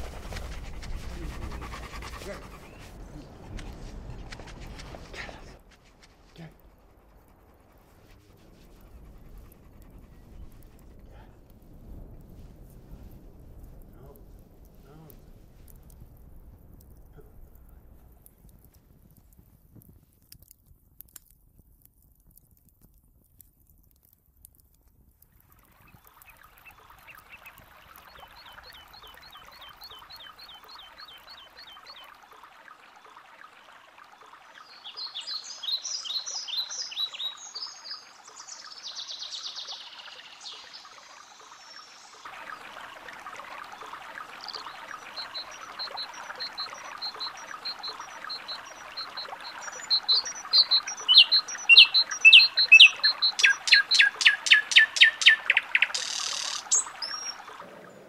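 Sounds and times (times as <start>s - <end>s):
outdoor ambience hiss: 0.0s - 21.9s
wood fire crackling: 0.0s - 31.9s
birds chirping and singing: 44.5s - 57.4s.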